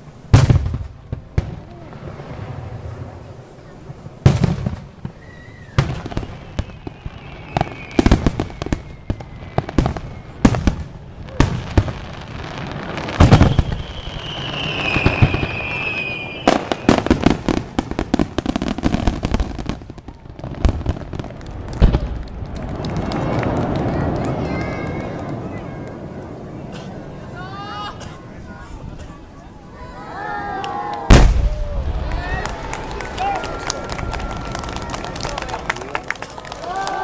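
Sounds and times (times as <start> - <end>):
firework bangs: 0.0 - 27.4, 31.0 - 37.0
rapid firework crackling: 0.0 - 27.4
falling firework whistle: 5.0 - 11.6, 12.8 - 17.4, 30.7 - 35.2.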